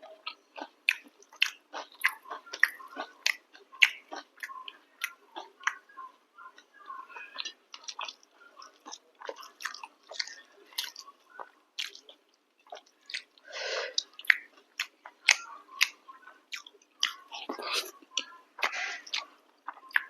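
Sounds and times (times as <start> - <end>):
close chewing wet smacks: 7.4 - 13.4, 14.0 - 20.0.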